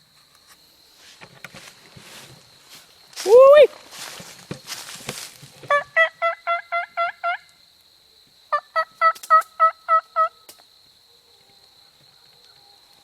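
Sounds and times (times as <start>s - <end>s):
turkey yelps: 5.7s - 7.4s, 8.5s - 10.4s.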